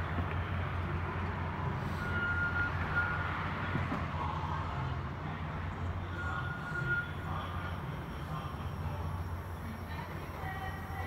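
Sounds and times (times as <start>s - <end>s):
short high squeal: 1.8s - 3.3s, 6.1s - 9.7s.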